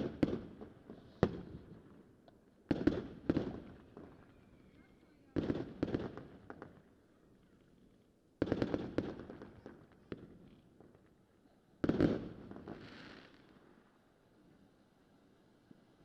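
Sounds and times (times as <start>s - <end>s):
fireworks bangs and crackling: 2.7s - 4.2s, 5.4s - 6.6s, 8.4s - 10.4s, 11.8s - 13.5s.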